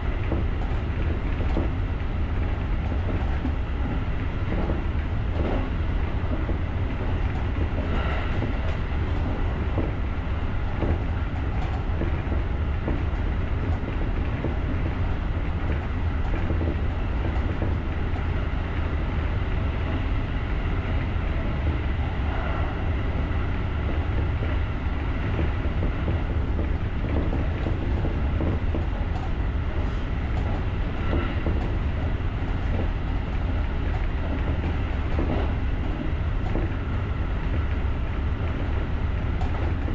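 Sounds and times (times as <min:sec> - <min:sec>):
train wheels rumbling on rail: 0:00.0 - 0:39.9
faint track knocks: 0:00.2 - 0:05.7, 0:10.8 - 0:18.2, 0:25.2 - 0:29.4.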